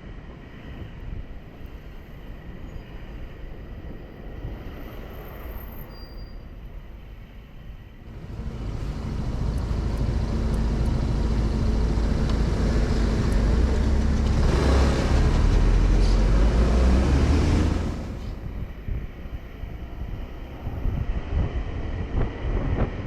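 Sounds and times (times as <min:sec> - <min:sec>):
road noise: 0:00.0 - 0:23.0
motorcycle engine running: 0:08.1 - 0:15.8.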